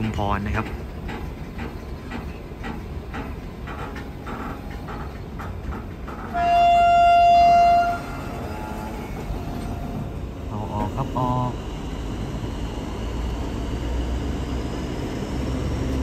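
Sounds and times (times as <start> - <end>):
train rumble: 0.0 - 16.0
train wheels clicking over rail joints: 0.0 - 16.0
train horn blast: 6.3 - 10.2.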